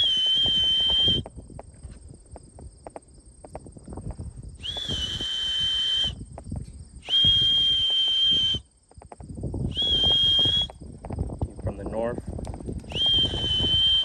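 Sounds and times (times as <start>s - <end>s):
whistle blasts: 0.0s - 1.4s, 4.6s - 6.3s, 7.0s - 8.7s, 9.6s - 10.9s, 12.8s - 14.0s.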